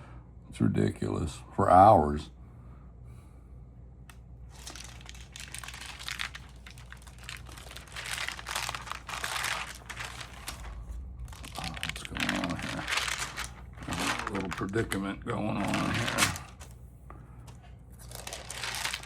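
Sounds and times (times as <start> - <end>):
album pages crinkling and rustling: 4.5 - 16.8, 17.4 - 19.0.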